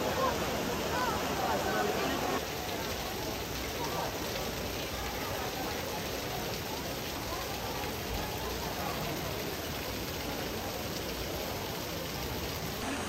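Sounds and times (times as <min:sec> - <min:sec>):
rain falling on water: 0:00.0 - 0:13.0.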